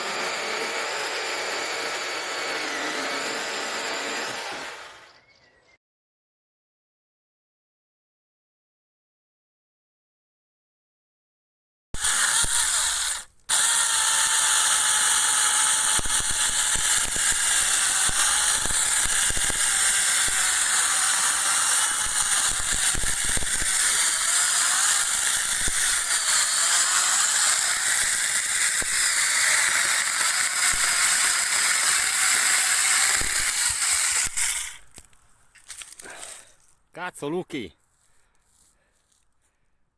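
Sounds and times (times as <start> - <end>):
electric chainsaw whine: 0.0 - 5.3, 12.0 - 35.0.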